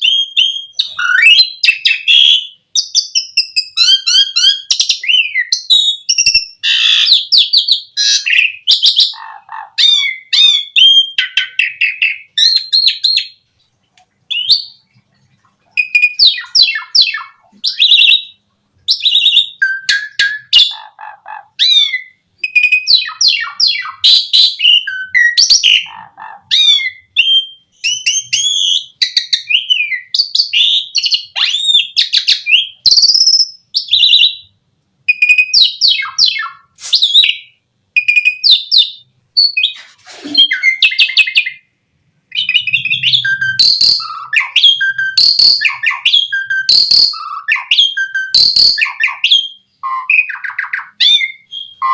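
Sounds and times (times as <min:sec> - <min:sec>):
starling singing: 0:00.0 - 0:13.4, 0:15.7 - 0:34.5, 0:35.1 - 0:41.7, 0:42.3 - 0:51.9.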